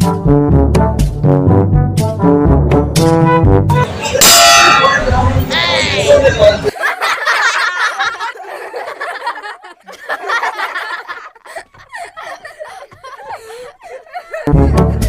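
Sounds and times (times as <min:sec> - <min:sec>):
people laughing: 0:03.8 - 0:15.0.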